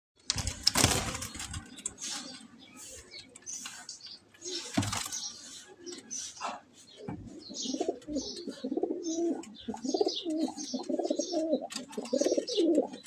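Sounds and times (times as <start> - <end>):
pigeons cooing: 4.4 - 13.0.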